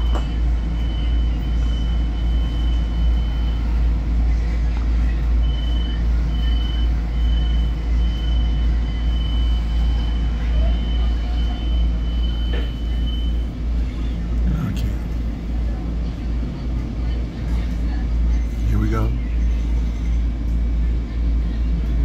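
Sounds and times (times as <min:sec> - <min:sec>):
low hum and rumble: 0:00.0 - 0:22.0
short beeps: 0:05.4 - 0:13.4.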